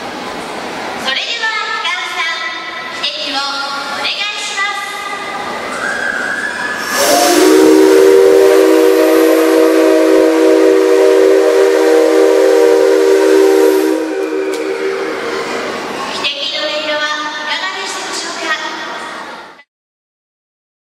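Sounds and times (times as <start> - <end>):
air hiss: 5.6 - 16.2
locomotive whistle on compressed air: 5.7 - 15.4.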